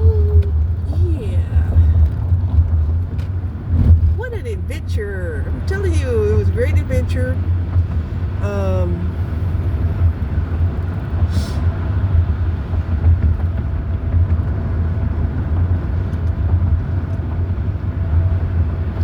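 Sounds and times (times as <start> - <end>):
moving vehicle rumble: 0.0 - 19.0.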